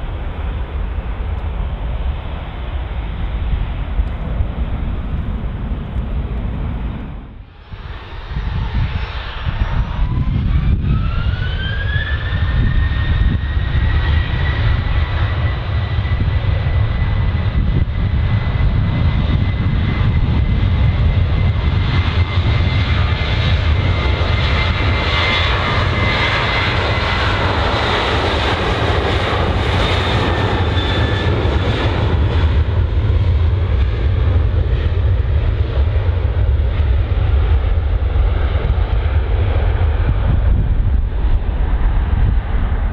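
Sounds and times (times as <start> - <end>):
deep engine rumble: 0.0 - 42.9
jet engines whining: 0.0 - 42.9.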